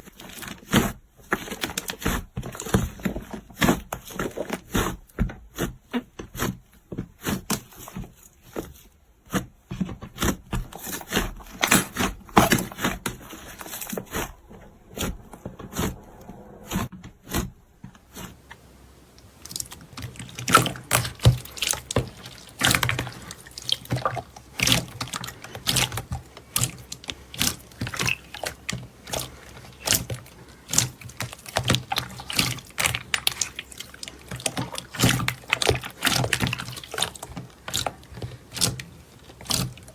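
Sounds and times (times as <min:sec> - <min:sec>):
slime squished by hand: 0:19.0 - 0:39.9.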